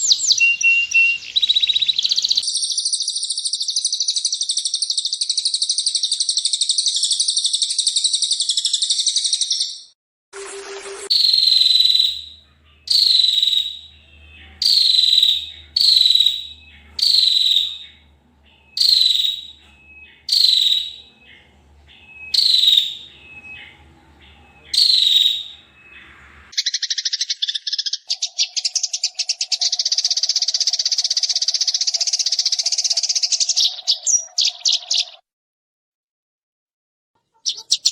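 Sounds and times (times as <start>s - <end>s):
bird high descending call: 0.0s - 2.4s, 10.4s - 30.6s
songbird chattering trill: 0.0s - 9.8s, 11.1s - 35.2s, 37.3s - 37.9s.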